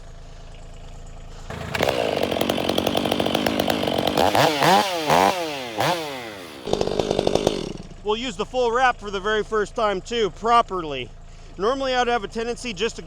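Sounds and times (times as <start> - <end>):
chainsaw starting and revving: 1.3 - 8.1.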